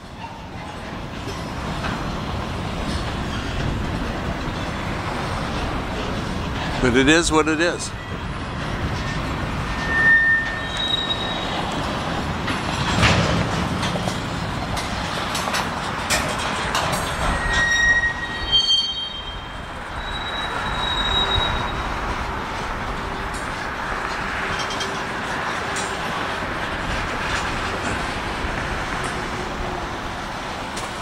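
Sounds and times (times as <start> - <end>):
freight train cars rolling: 0.0 - 31.0
high-pitched wheel squeals: 7.9 - 12.1, 17.0 - 26.2.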